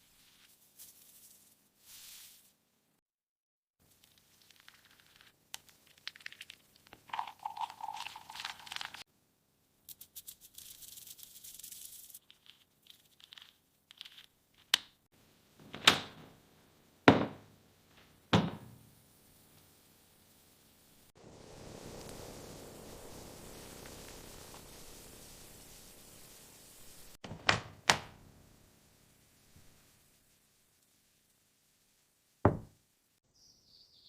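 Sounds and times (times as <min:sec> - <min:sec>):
crinkling and scraping: 0:03.8 - 0:09.1
sharp thuds: 0:17.1 - 0:17.5, 0:32.5 - 0:32.8.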